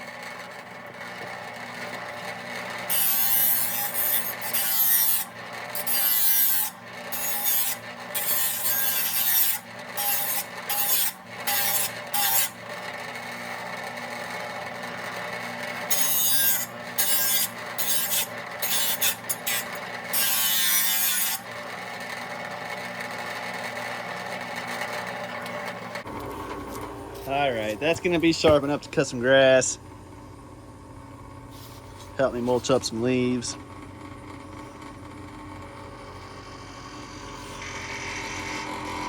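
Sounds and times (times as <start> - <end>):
grinder motor hum: 0.0 - 39.0
blade grinding hiss: 36.0 - 39.0.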